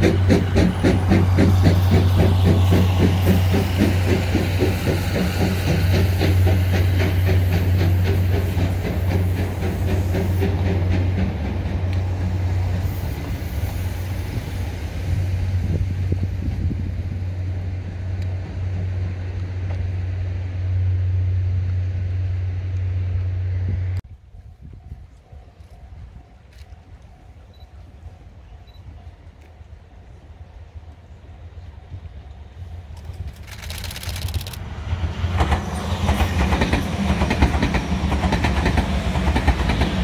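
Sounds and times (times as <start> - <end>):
train wheels clattering over rail joints: 0.0 - 13.8, 32.9 - 34.6, 35.3 - 40.0.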